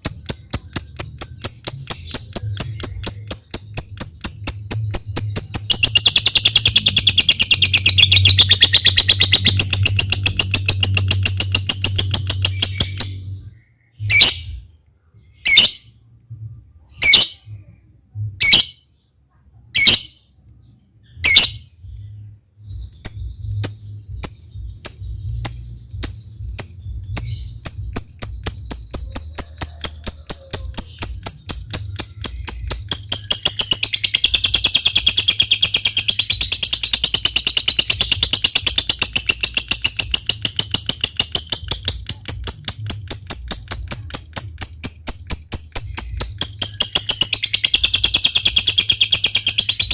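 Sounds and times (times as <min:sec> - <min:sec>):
lovebird chattering trill: 0:00.0 - 0:14.6, 0:22.7 - 0:49.9
bird quick ticking notes: 0:23.0 - 0:49.9.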